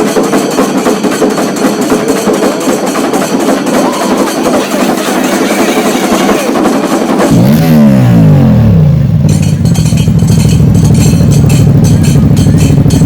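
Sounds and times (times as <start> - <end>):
steady rhythmic beat: 0.0 - 13.0
motorcycle engine revving: 7.2 - 13.0.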